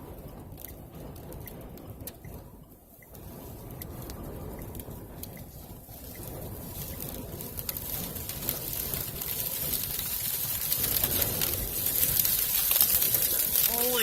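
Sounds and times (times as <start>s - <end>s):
gale-force wind buffeting truck: 0.0s - 14.0s
blowing dust hissing: 3.1s - 14.0s.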